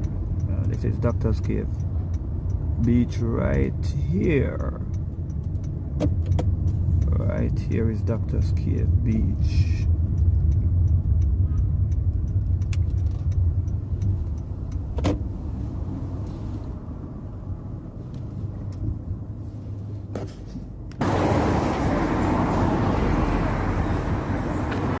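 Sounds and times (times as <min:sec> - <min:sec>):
sharp clicks: 0:00.0 - 0:07.6, 0:08.2 - 0:15.3
car rumble inside cabin: 0:00.0 - 0:25.0.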